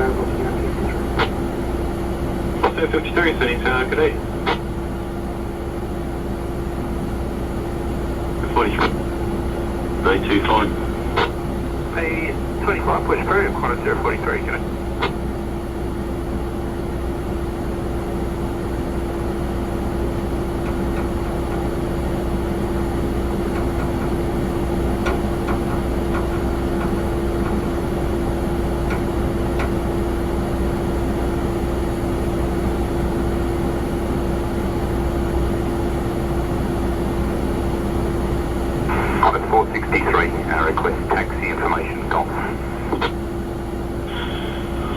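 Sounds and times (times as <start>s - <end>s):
jet airliner engine hum: 0.0s - 44.9s.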